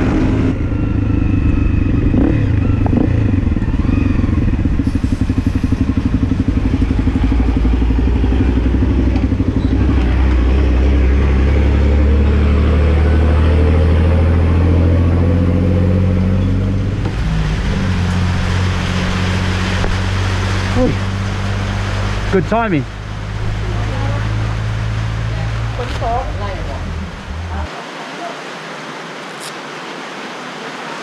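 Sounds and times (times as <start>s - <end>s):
motorcycle engine idling: 0.8s - 10.3s.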